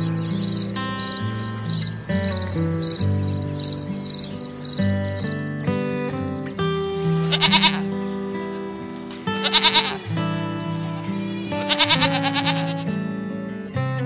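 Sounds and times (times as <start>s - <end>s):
soft background music: 0.0s - 14.0s
animal bleating calls: 7.0s - 8.1s, 9.3s - 13.1s.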